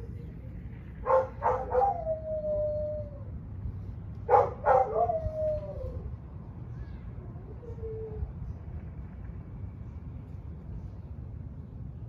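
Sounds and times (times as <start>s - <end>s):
steady low rumble: 0.0s - 12.0s
dog yelping and howling: 1.0s - 3.4s, 4.3s - 6.1s.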